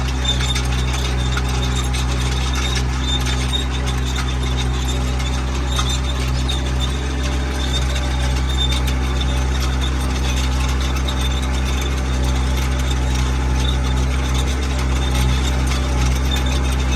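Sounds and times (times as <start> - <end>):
diesel engine running steadily: 0.0 - 16.9.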